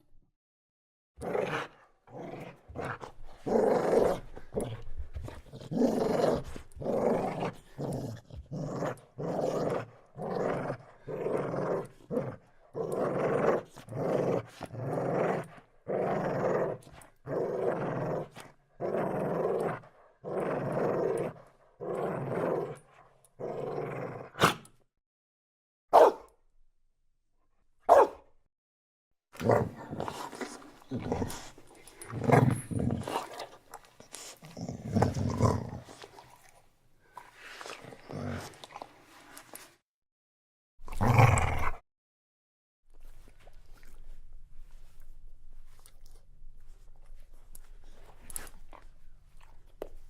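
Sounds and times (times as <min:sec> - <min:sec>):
dog growling: 0:29.4 - 0:33.4, 0:40.9 - 0:41.8.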